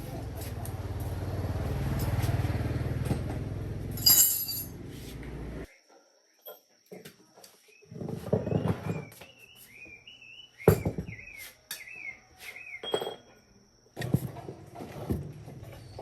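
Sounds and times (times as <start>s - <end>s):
sharp knocks and clinks: 3.1s - 4.8s, 12.8s - 13.4s
bird chirping: 7.6s - 13.2s.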